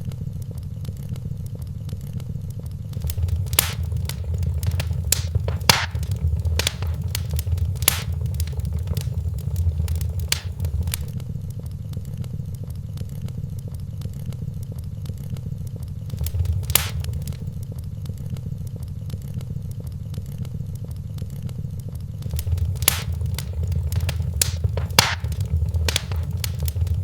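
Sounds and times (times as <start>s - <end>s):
wood fire crackling and popping: 2.9s - 11.2s, 16.1s - 17.5s, 22.2s - 27.0s
low rumble: 3.0s - 11.1s, 16.1s - 17.5s, 22.3s - 27.0s.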